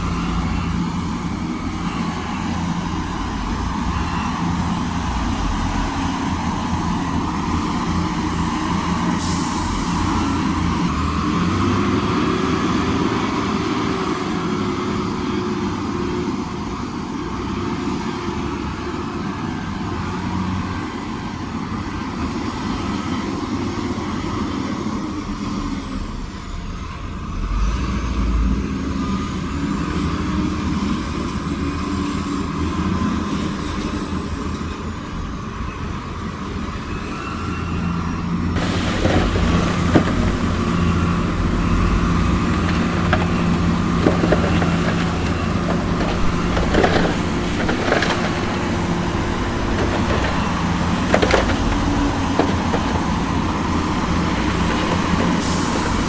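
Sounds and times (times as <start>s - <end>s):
diesel engine running under load: 0.0s - 56.0s
deep rumble: 38.6s - 56.0s.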